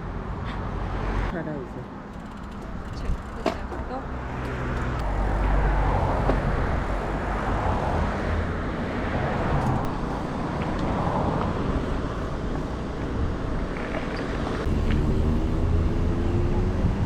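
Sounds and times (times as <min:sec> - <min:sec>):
wind rushing over microphone: 0:04.1 - 0:14.7, 0:15.4 - 0:17.0.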